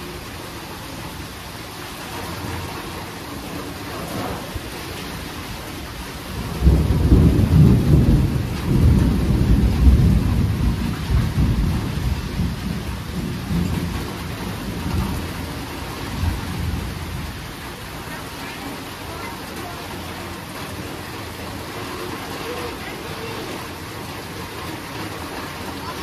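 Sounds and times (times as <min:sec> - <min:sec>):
steady rain falling: 0:00.0 - 0:26.0
thunder rumbling: 0:06.0 - 0:18.3.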